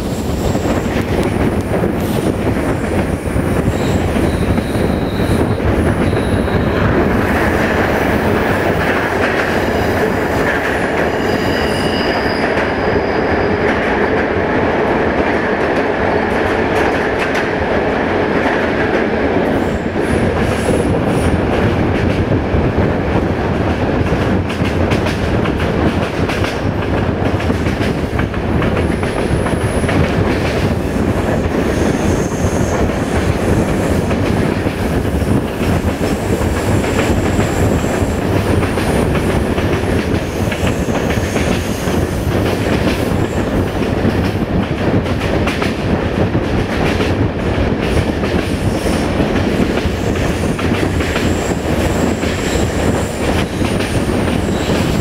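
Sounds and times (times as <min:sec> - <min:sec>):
train rail and wheel noise: 0:00.0 - 0:55.0
high-pitched wheel squeals: 0:11.0 - 0:13.6.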